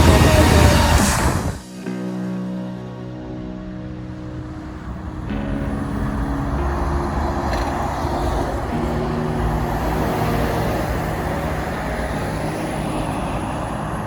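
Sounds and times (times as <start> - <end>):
heavy truck driving past: 3.2 - 14.0.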